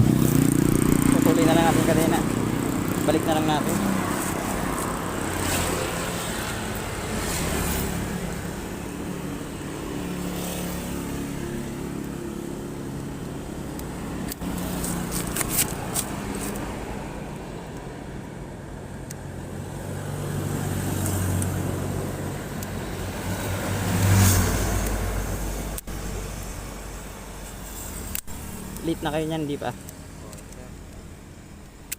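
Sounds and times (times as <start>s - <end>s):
vehicle passing: 0.0s - 13.1s, 22.9s - 26.7s
vehicle engines revving: 0.0s - 31.0s
sharp clicks: 28.0s - 28.8s.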